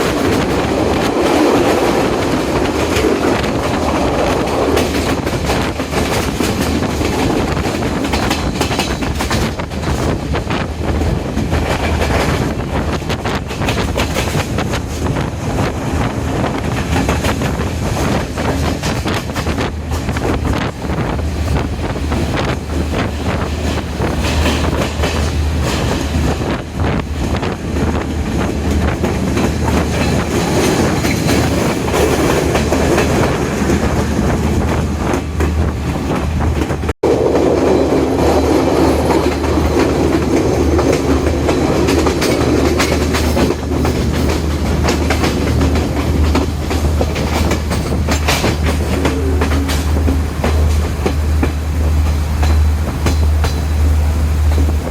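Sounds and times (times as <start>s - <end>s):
train rumbling at speed: 0.0s - 54.9s
wheels clicking over rail joints: 0.0s - 54.9s.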